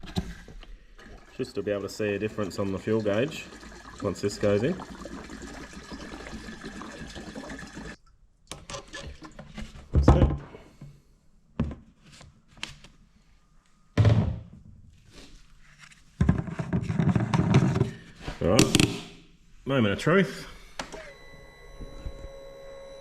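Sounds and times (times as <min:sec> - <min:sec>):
fuel pouring into tank: 0:01.0 - 0:08.0.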